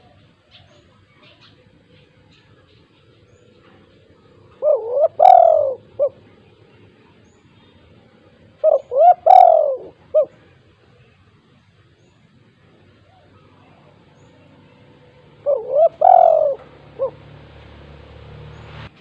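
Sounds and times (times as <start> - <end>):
dove cooing: 0.0 - 6.9, 8.3 - 10.7, 12.9 - 17.4.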